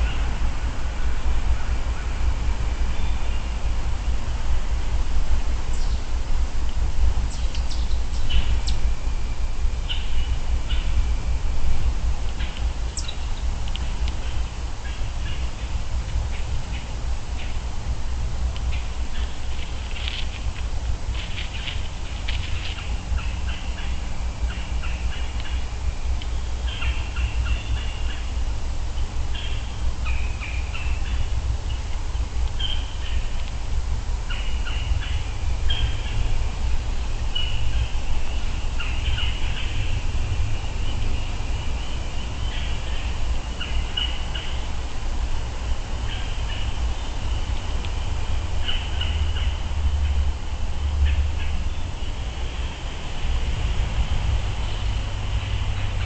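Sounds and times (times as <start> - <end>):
birds chirping: 0.0 - 4.2, 5.6 - 6.1, 7.2 - 17.7, 18.6 - 33.5, 34.2 - 53.2.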